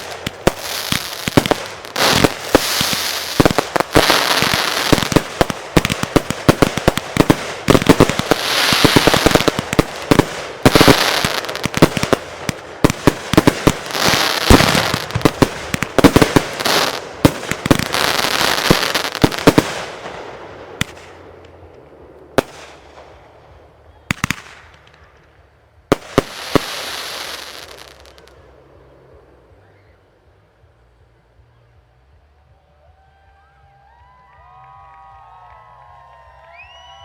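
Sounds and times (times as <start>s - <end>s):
fireworks crackling hiss: 0.0s - 25.3s, 25.9s - 30.0s
fireworks bangs: 0.0s - 28.5s.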